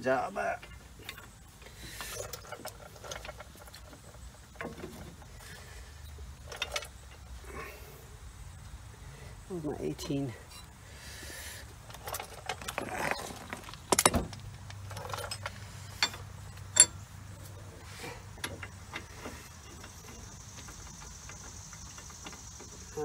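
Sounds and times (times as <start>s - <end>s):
faint steady hiss: 0.0s - 23.0s
metal tools clinking: 11.9s - 22.0s.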